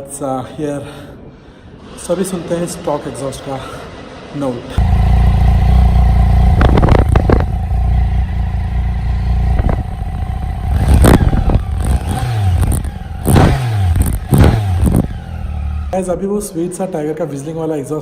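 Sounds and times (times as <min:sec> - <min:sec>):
motorcycle engine running: 0:04.8 - 0:16.0.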